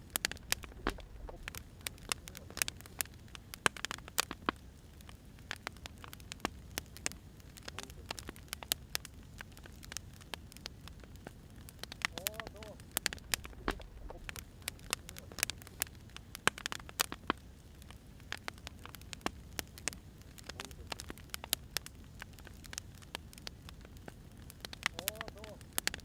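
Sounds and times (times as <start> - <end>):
low fire hiss: 0.0 - 26.0
wood fire crackling: 0.0 - 26.0.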